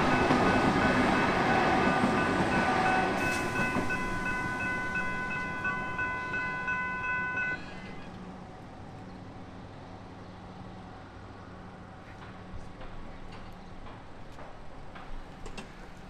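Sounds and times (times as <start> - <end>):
level crossing warning bells: 0.0 - 7.9
electric train rumbling: 0.0 - 16.0.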